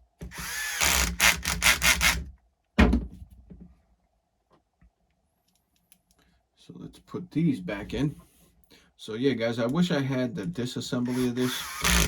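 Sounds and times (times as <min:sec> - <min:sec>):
sharp thump of object set down: 0:02.8 - 0:03.7.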